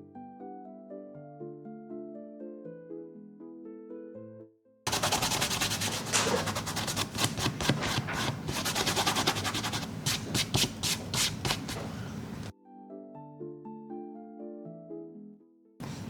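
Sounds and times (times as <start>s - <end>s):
rubbing on paper: 4.9s - 12.5s.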